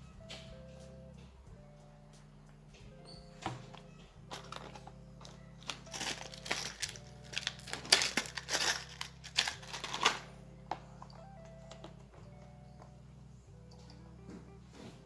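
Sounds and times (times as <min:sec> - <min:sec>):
background music: 0:00.0 - 0:15.0
hand riveting crunching and clicking: 0:03.7 - 0:13.0.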